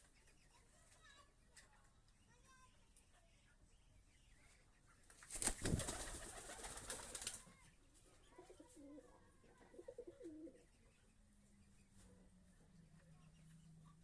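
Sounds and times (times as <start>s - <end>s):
pigeons cooing: 8.4s - 10.6s.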